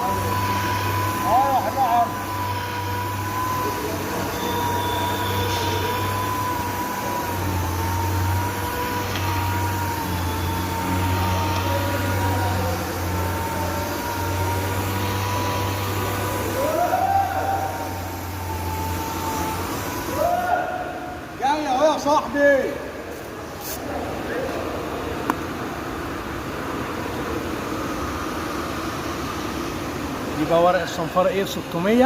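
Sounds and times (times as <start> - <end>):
orbital sander whining: 0.0 - 20.2.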